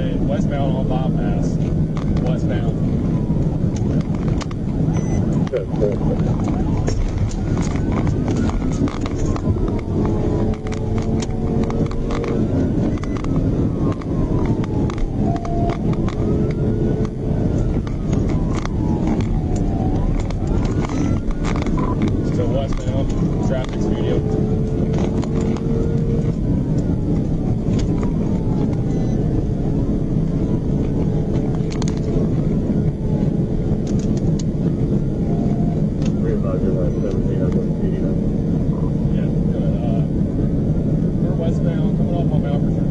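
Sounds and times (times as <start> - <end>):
car engine and road noise: 0.0 - 42.9
police siren wailing: 0.2 - 42.9
sharp clicks: 6.2 - 23.8, 33.8 - 34.5.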